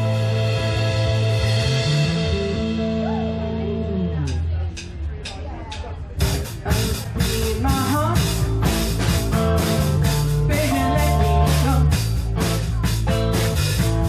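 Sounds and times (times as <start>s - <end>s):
electric guitar: 0.0s - 4.5s, 6.2s - 14.0s
bass guitar: 0.0s - 14.0s
drum kit beat: 0.0s - 14.0s
person singing: 6.6s - 8.7s, 10.0s - 12.2s.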